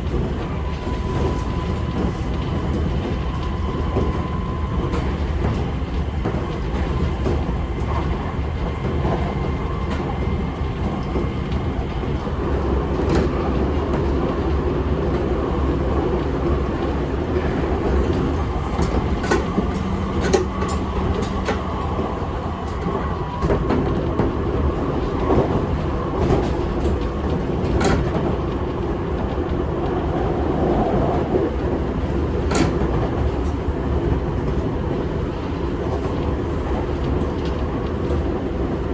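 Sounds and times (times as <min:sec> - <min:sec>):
train wheels rumbling on rail: 0:00.0 - 0:38.9
clicks over rail joints: 0:16.8 - 0:28.7.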